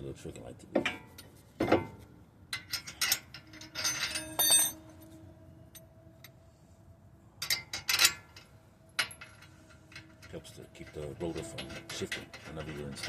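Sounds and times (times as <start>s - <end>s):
metal clinks and clanks: 2.5s - 5.9s, 7.4s - 13.0s
metallic ring: 2.6s - 6.4s, 7.4s - 13.0s.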